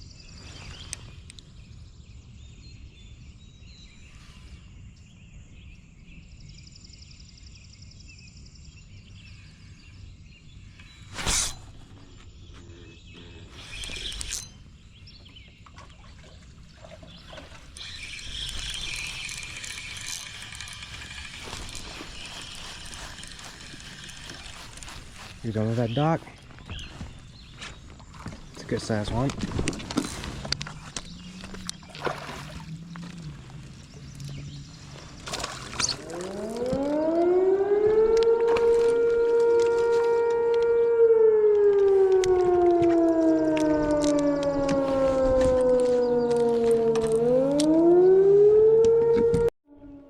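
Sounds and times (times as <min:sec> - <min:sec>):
small birds chirping: 0:00.0 - 0:37.3, 0:43.2 - 0:48.2
lake water: 0:12.8 - 0:40.6, 0:41.7 - 0:48.2
siren wailing: 0:36.0 - 0:50.0.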